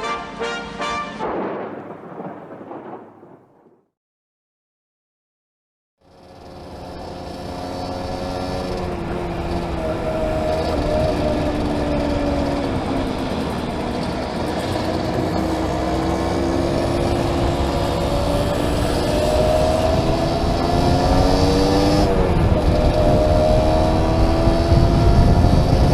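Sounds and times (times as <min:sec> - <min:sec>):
motorcycle engine running: 0:06.1 - 0:25.9
wind rushing on microphone: 0:16.8 - 0:25.9.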